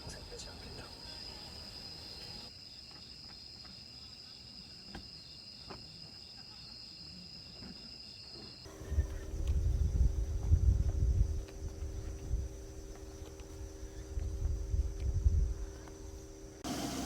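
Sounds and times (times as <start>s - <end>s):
crickets chirping: 0.0s - 17.0s
loud low rumble: 8.7s - 12.6s
steady hum: 8.7s - 17.0s.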